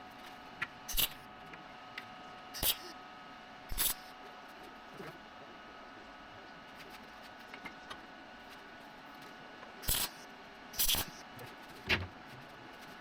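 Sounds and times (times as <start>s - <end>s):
welding arc crackle: 0.9s - 1.2s, 3.7s - 4.1s, 9.8s - 10.2s, 10.8s - 11.2s.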